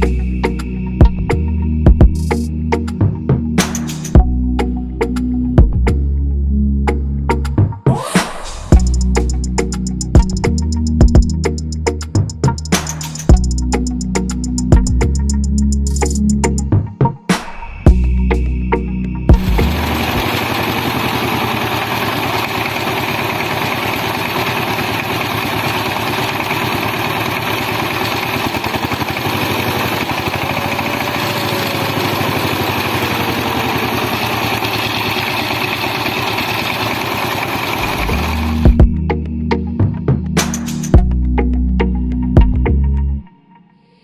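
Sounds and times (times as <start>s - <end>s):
small motor with fine rattle: 20.0s - 38.6s.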